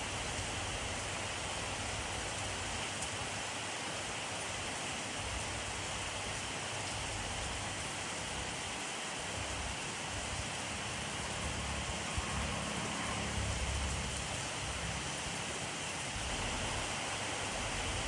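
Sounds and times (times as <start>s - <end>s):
rain pattering: 4.2s - 18.0s.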